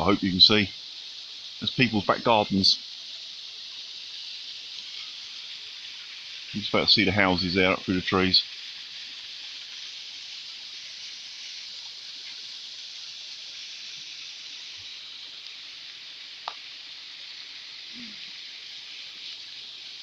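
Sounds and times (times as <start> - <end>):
small sharp tick: 16.4 - 16.6.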